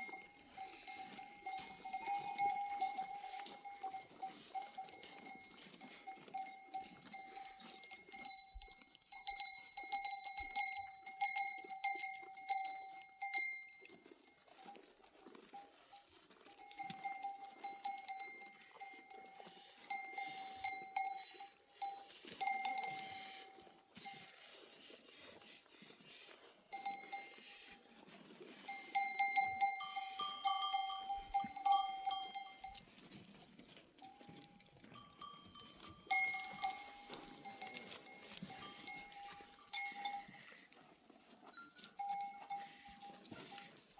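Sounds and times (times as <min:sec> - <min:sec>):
goat bells clanking: 0:00.0 - 0:43.9
higher-pitched bell: 0:28.7 - 0:32.8, 0:35.0 - 0:40.4.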